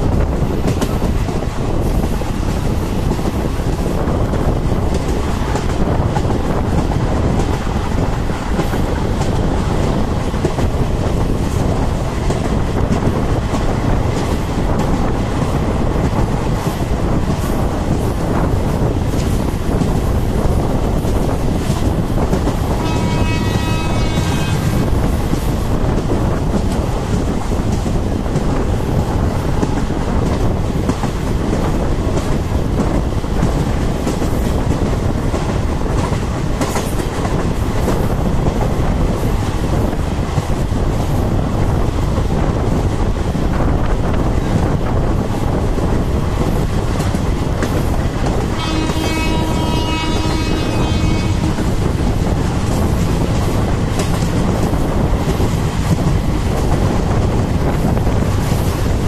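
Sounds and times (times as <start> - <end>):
clickety-clack over rail joints: 0.0 - 59.0
rushing air: 0.0 - 59.0
train wheels rumbling on rail: 0.0 - 59.0
train horn: 22.7 - 25.0, 48.5 - 52.0.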